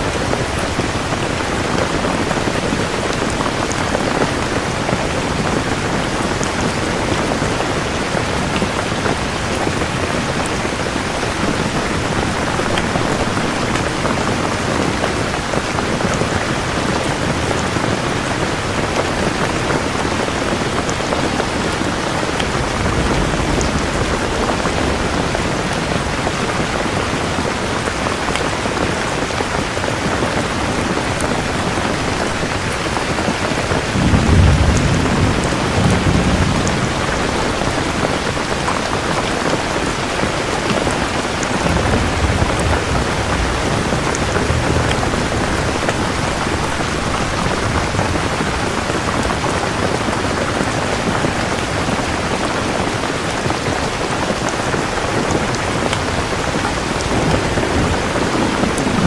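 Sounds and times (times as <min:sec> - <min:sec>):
heavy rain pouring: 0:00.0 - 0:59.0
distant thunder rumble: 0:18.7 - 0:29.7, 0:30.3 - 0:53.5, 0:54.3 - 0:59.0.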